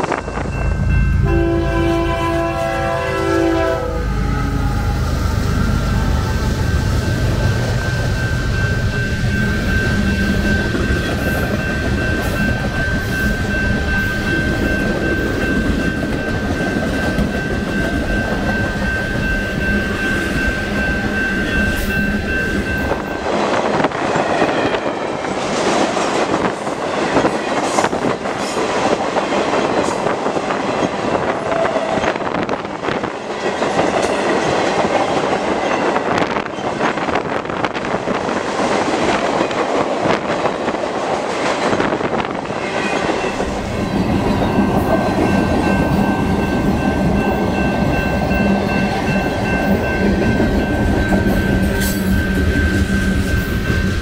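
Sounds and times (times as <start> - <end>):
high whine: 0.0 - 23.4
train wheels rumbling on rails: 0.0 - 54.0.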